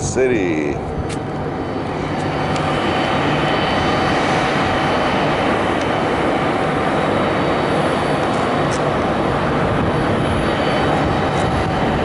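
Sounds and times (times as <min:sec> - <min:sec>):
jet engine whine: 0:00.0 - 0:12.0.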